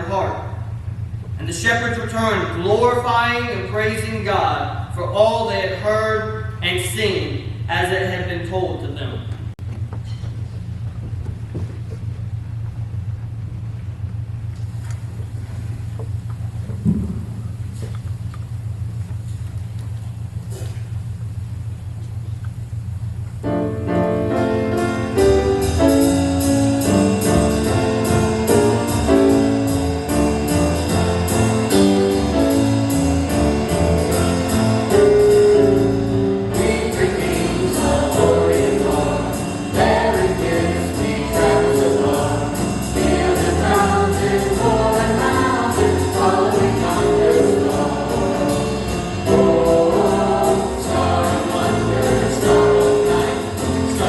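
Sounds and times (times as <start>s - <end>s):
low bass: 6.3s - 54.0s
choir singing with instruments: 23.5s - 54.0s.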